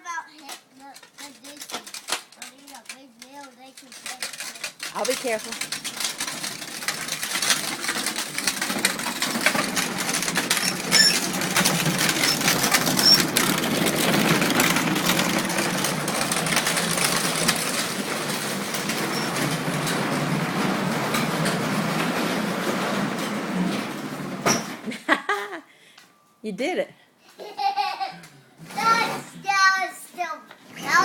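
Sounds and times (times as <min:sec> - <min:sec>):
plastic wheels clattering: 0:00.1 - 0:24.4, 0:28.6 - 0:29.9, 0:30.6 - 0:31.0
toy tractor electric motor whirring: 0:00.4 - 0:20.0.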